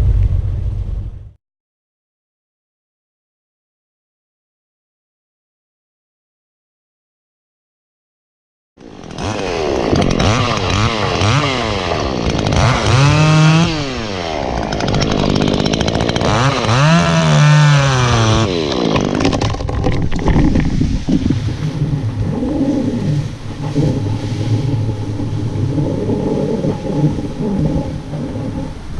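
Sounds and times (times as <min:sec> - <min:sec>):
chainsaw revving: 0:08.8 - 0:19.7.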